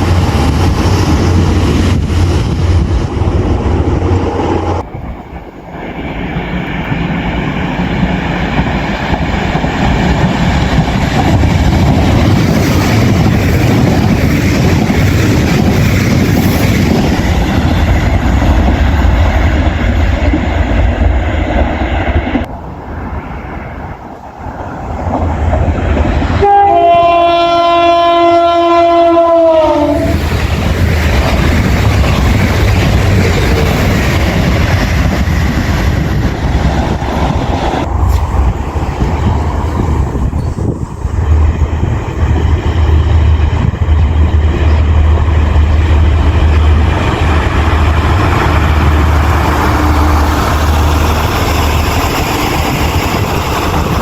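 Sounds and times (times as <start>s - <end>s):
train wheels rumbling on rails: 0.0s - 54.0s
train horn chord: 26.3s - 30.1s.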